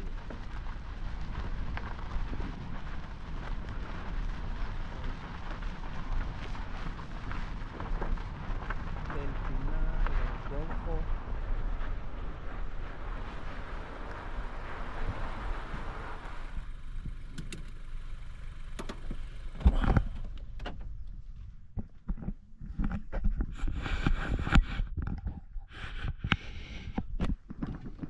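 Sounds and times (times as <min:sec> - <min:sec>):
steady rushing noise: 0:00.0 - 0:17.2
scattered clicks: 0:17.3 - 0:17.8
rustling and knocking handling: 0:19.0 - 0:28.0.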